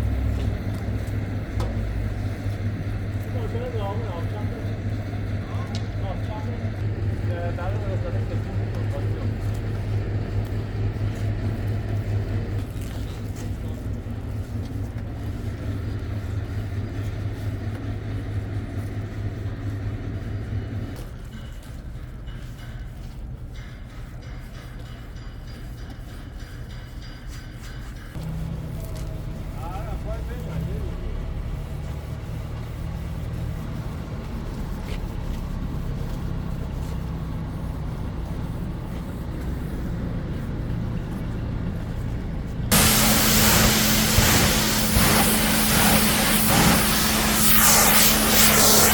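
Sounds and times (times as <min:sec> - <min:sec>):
low mechanical rumble: 0:00.0 - 0:22.3, 0:28.1 - 0:48.9
pressure washer motor hum: 0:40.6 - 0:48.9
hiss of spray: 0:42.7 - 0:48.9.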